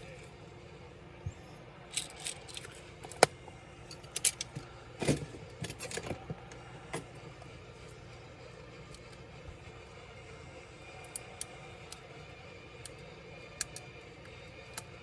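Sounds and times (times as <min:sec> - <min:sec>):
clicks of laptop parts and tools: 0:01.9 - 0:07.3.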